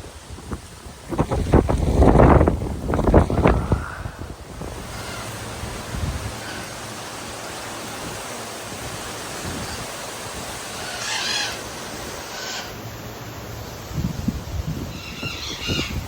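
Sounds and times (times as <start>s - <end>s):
strong wind on microphone: 0.0s - 12.4s, 13.5s - 16.0s
bird squawking: 10.7s - 12.8s, 15.0s - 16.0s.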